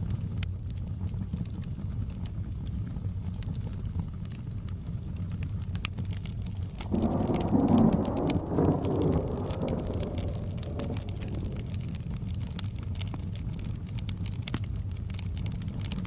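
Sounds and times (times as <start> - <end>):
fire crackling with pops: 0.0 - 16.0
rain rumble: 0.2 - 16.0
thunder rolling: 6.8 - 12.9.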